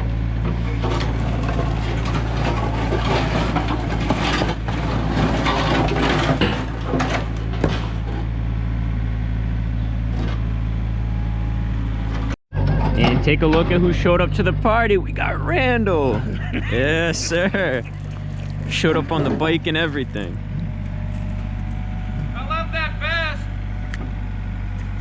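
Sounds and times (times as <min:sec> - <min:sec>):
heavy diesel machinery running: 0:00.0 - 0:25.0
concrete slabs scraping and crunching: 0:00.6 - 0:08.3, 0:16.1 - 0:21.7.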